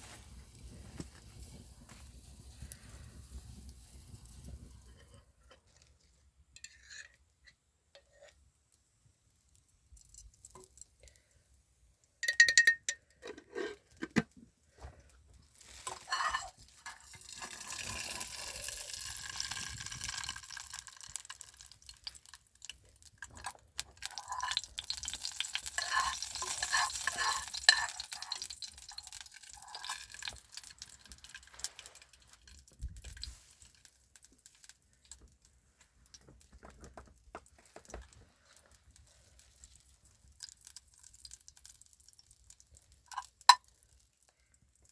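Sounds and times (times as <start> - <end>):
utensil clinking and scraping pan: 6.6 - 7.2, 15.7 - 20.2, 23.3 - 32.0
sizzling hiss: 24.1 - 32.4.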